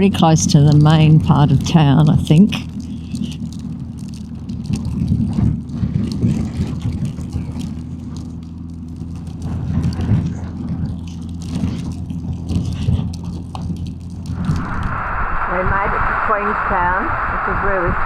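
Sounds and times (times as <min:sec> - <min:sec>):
motorcycle engine running: 0:00.0 - 0:14.8
wind noise: 0:14.2 - 0:18.0.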